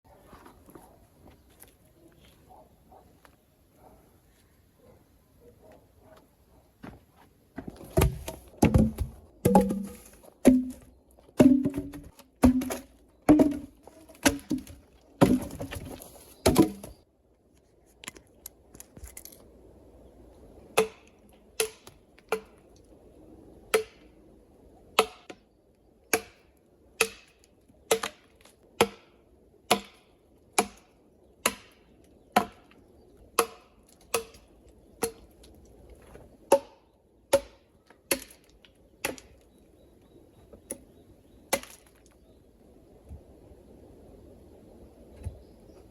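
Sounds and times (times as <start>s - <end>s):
knocks and scrapes: 6.9s - 17.0s
axe chopping wood: 7.9s - 17.0s, 20.7s - 22.6s, 23.7s - 24.0s, 25.0s - 25.4s, 26.1s - 32.7s, 33.4s - 35.3s, 36.5s - 39.3s.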